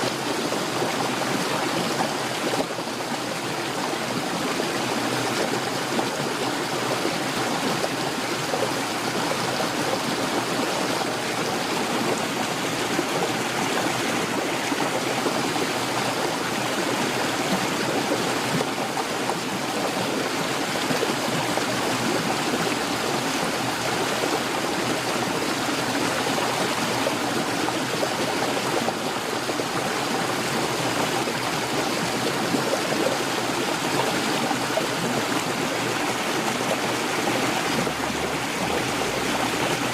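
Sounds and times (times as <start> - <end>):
heavy rain pouring: 29.6 - 39.9.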